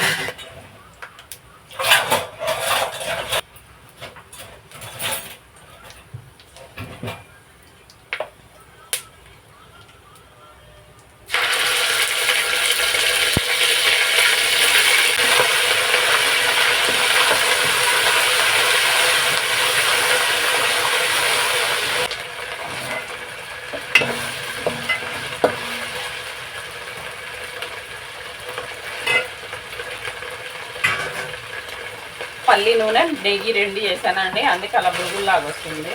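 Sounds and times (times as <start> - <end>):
oil sizzling in a pan: 11.3 - 35.9.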